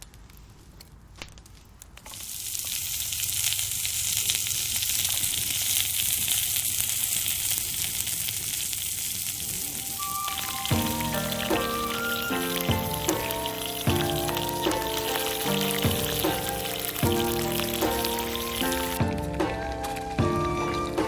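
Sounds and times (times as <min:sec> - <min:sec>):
faint crackles: 0:00.0 - 0:21.0
food sizzling in a hot pan: 0:02.1 - 0:21.0.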